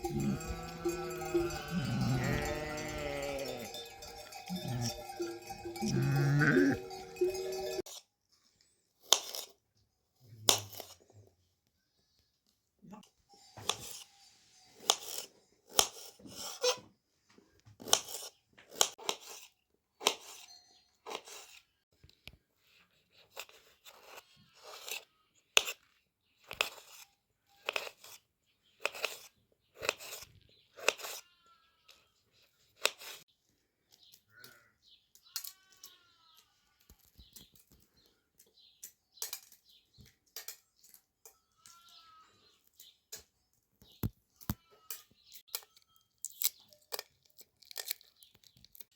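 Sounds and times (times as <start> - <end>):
crunching tearing sounds: 45.5 - 48.9.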